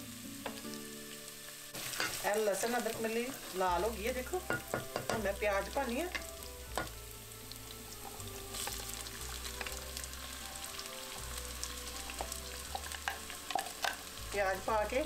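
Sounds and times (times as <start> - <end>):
hot oil sizzling in a pot: 0.0 - 15.0
utensil tapping a pot: 4.4 - 5.4.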